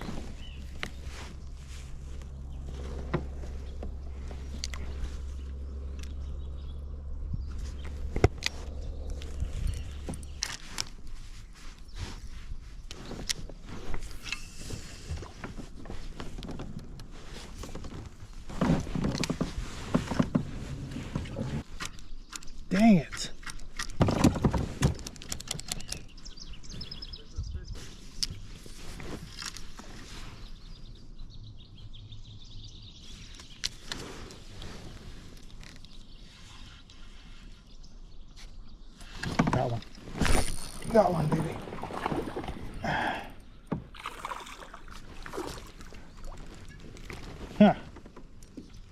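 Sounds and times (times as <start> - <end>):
rustling: 0.0 - 5.9, 44.9 - 48.9
small clicks and knocks: 21.7 - 26.1
faint bird chirps: 25.6 - 28.0.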